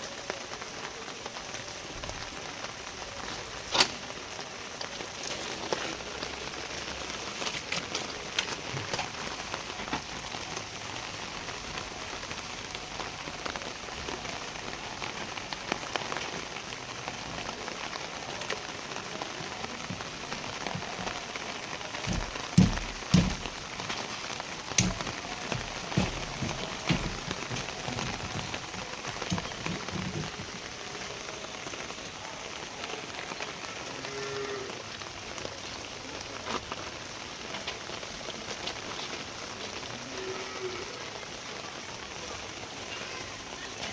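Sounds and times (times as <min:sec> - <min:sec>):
steady rain falling: 0:00.0 - 0:43.9
dull knocks: 0:22.0 - 0:24.0, 0:24.8 - 0:30.5.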